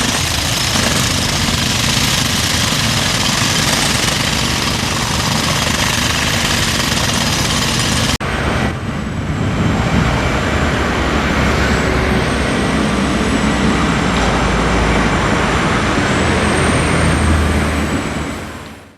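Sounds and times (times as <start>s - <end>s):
heavy diesel machinery noise: 0.0s - 18.9s.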